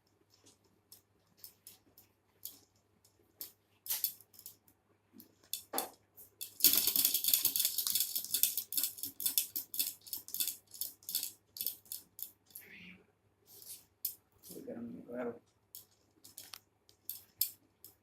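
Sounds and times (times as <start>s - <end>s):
small clicks and taps: 15.4s - 18.0s.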